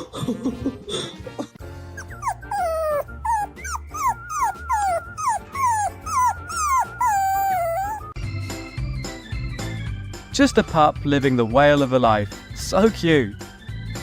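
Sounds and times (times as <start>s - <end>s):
dog whining: 2.0s - 8.2s.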